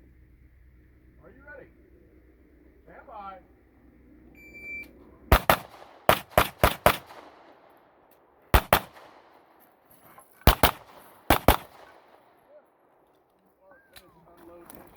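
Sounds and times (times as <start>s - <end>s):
pistol shots: 5.3s - 9.6s, 10.4s - 12.9s.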